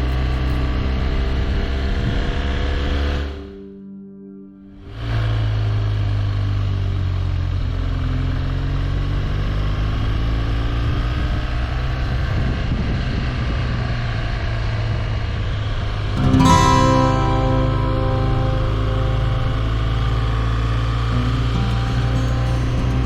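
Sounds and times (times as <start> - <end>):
wind and road noise: 0.0 - 3.4, 6.2 - 16.2
music: 0.0 - 6.1, 16.0 - 23.0.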